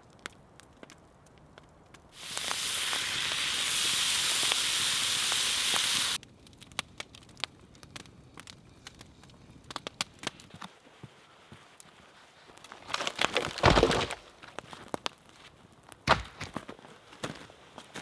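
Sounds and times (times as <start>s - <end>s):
campfire crackling and popping: 0.0s - 18.0s
loud steady hiss: 2.2s - 6.2s.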